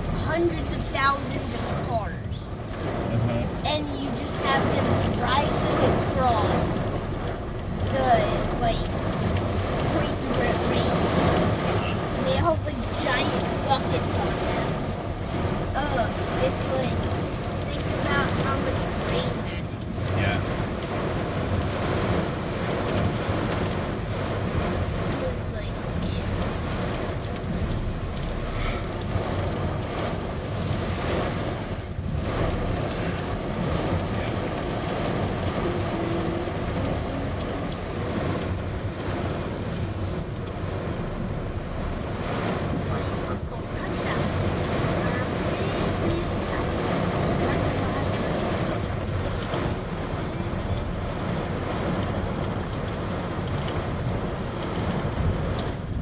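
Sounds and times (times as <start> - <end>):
heavy rain on a car: 0.0 - 56.0.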